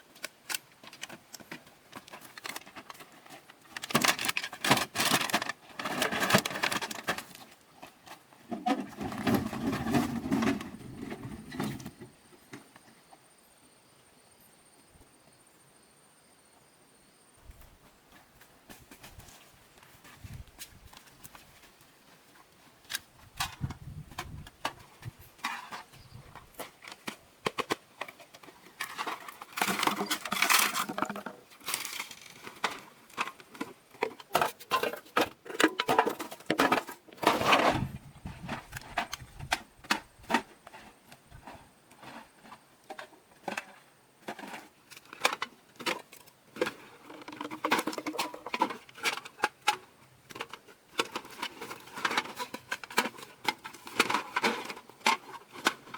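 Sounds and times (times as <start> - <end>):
small hard objects clattering: 0.5 - 12.0, 22.9 - 55.9.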